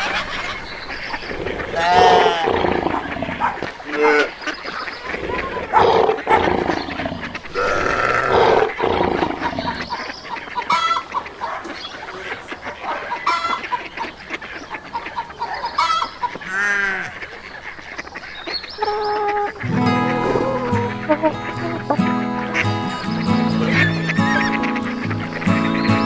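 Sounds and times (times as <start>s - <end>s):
short clucking calls: 0.0s - 26.0s
long arching animal cry: 1.2s - 11.1s, 15.0s - 17.3s, 18.7s - 22.0s, 23.3s - 26.0s
animal growl: 1.6s - 4.3s, 5.1s - 9.8s, 19.9s - 21.0s.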